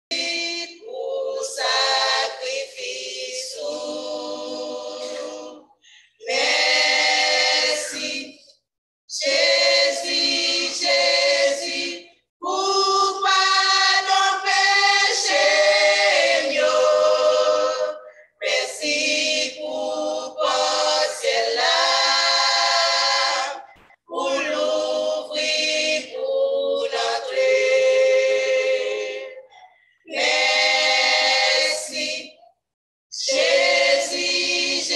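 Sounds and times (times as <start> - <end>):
choir singing a cappella: 0.1 - 34.9.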